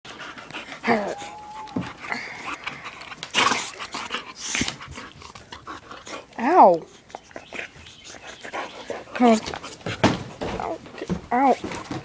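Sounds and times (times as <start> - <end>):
dog panting: 0.1 - 12.0
dog whining: 0.8 - 2.9.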